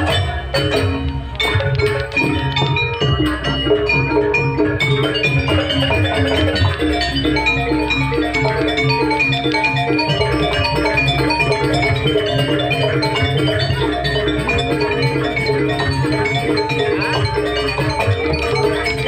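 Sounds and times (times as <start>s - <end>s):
metal mallet instruments melody: 0.0s - 19.0s
steady drumming: 0.0s - 19.0s.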